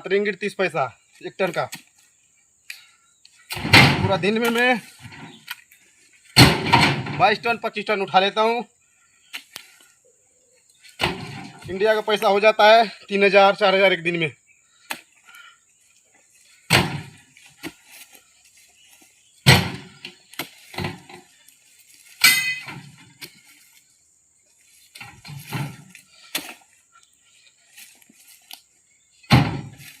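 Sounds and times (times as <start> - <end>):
fruit bunches thudding onto trailer: 3.5 - 5.4, 6.4 - 7.5, 11.0 - 11.8, 16.6 - 17.8, 19.4 - 21.3, 24.9 - 25.9, 29.2 - 30.0
ringing metallic clang: 22.2 - 22.8.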